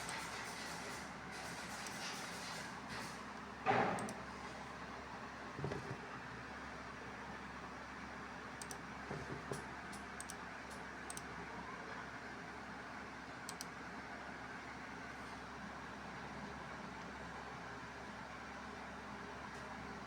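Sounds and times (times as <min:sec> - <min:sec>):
computer mouse clicking: 0:08.6 - 0:08.8, 0:09.5 - 0:11.3, 0:13.5 - 0:13.7.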